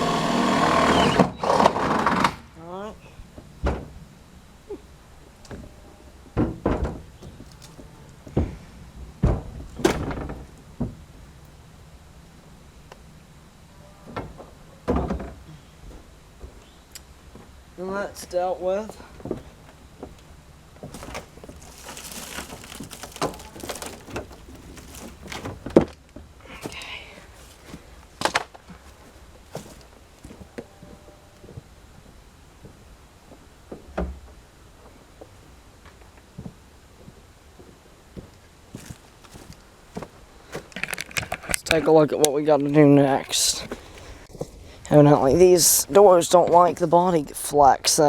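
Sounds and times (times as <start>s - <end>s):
heavy metal thunks and knocks: 9.2s - 11.0s.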